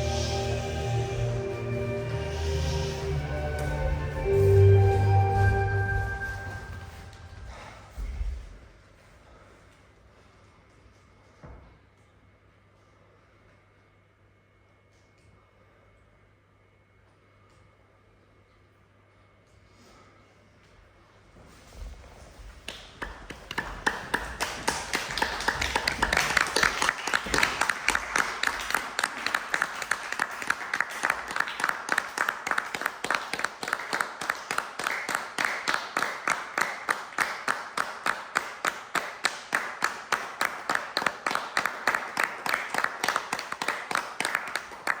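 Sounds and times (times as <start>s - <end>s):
audience applause: 22.7s - 45.0s.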